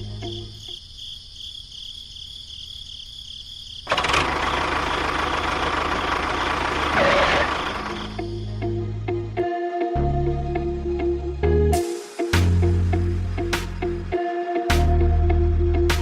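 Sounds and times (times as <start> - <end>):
loud engine-like running noise: 3.9 - 8.3.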